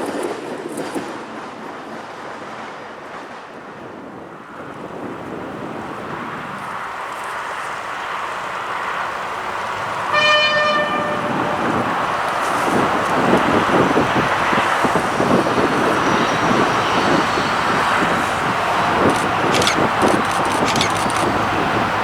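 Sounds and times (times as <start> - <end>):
freight train rumbling: 0.0 - 22.0
locomotive horn blast: 9.6 - 22.0.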